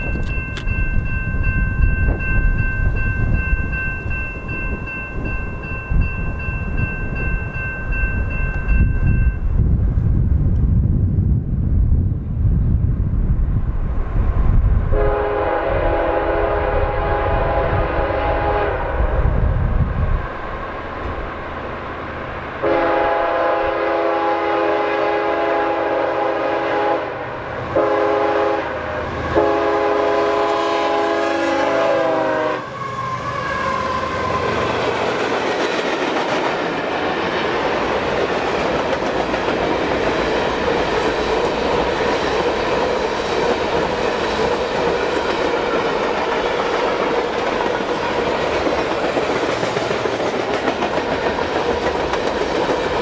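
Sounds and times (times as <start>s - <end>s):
locomotive air horn blasts: 14.9s - 19.4s, 22.6s - 34.5s
wheels clacking on rail joints: 34.4s - 53.0s.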